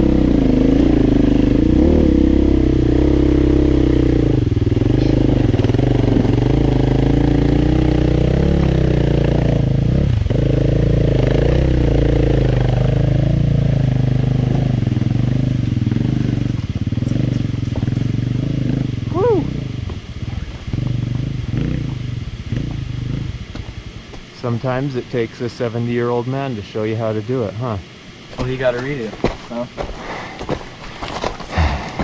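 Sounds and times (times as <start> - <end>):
dirt bike engine revving: 0.0 - 32.0.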